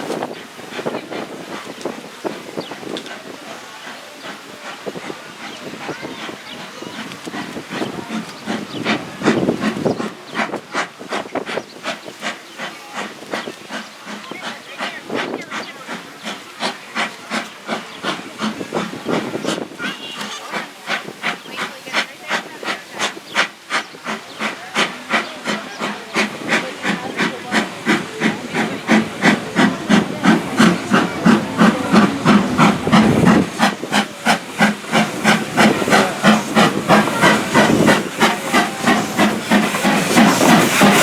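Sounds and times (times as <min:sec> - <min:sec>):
steam hissing: 0:00.0 - 0:41.0
steam locomotive chuffing: 0:00.0 - 0:41.0.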